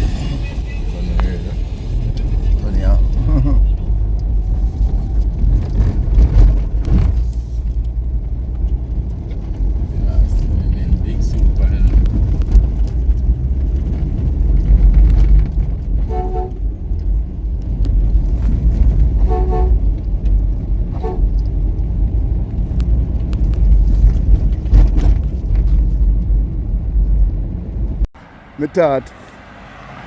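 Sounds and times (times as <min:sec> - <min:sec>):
vehicle horn tooting: 0:16.0 - 0:16.6, 0:19.2 - 0:19.8, 0:21.0 - 0:21.3.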